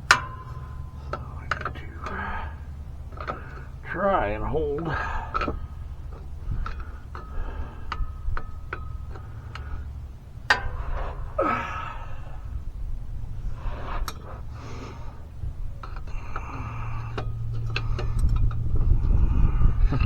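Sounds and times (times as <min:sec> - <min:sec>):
wrench clicking on bolts: 0:00.0 - 0:12.3
steady low hum: 0:00.0 - 0:20.0
effortful breaths or grunts: 0:00.8 - 0:20.0.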